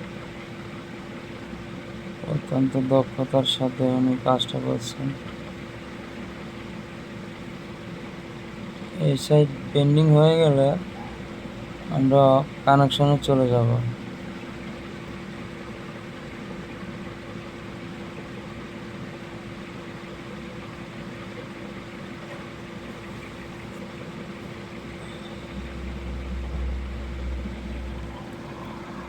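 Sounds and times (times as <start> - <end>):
steady background hum: 0.0 - 29.0
deep rumble: 25.1 - 29.0.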